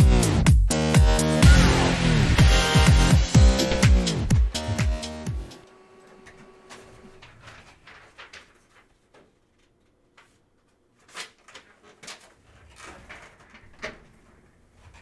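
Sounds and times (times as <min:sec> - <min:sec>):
crinkly rustles of card packs: 0:06.7 - 0:15.0.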